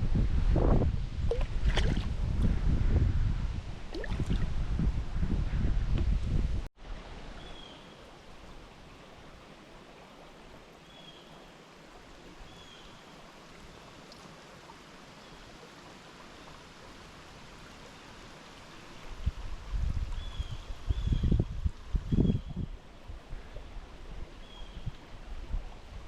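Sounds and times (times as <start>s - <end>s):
river water over rocks: 6.8s - 20.9s.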